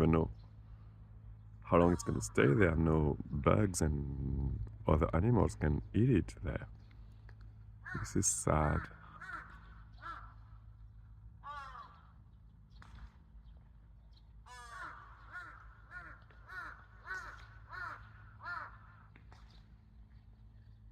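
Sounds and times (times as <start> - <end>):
crows cawing: 1.7 - 2.8, 7.8 - 10.8, 11.4 - 12.3, 14.4 - 19.7.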